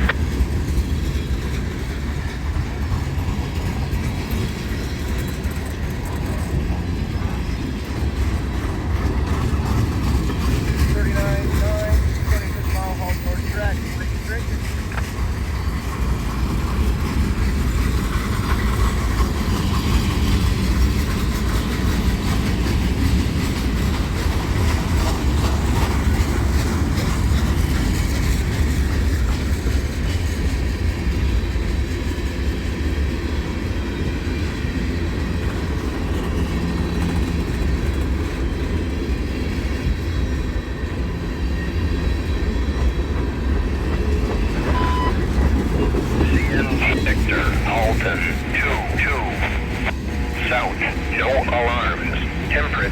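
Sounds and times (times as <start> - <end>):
wheels clacking over rail joints: 0.0 - 30.6
train wheels rumbling on rails: 0.0 - 52.9.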